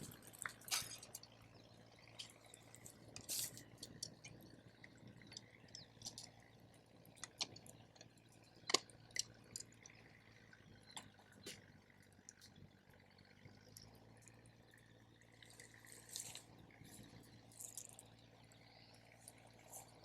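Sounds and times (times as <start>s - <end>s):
campfire crackling: 0.0s - 14.5s.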